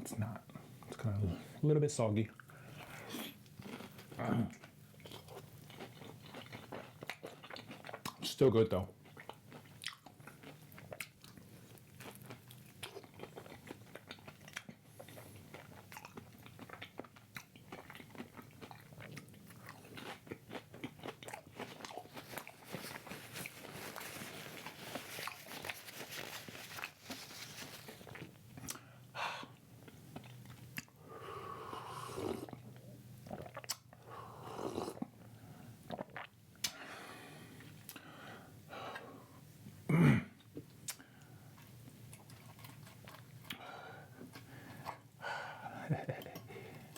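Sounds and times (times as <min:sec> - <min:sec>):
close biting and chewing: 0:12.0 - 0:28.8.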